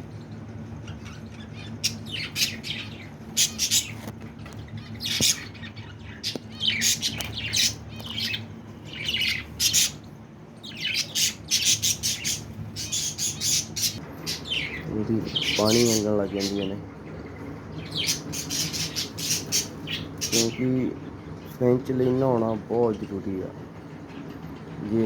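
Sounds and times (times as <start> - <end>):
steady low hum: 0.0 - 25.0
budgerigars squawking and chirping: 0.8 - 10.0, 10.6 - 21.1.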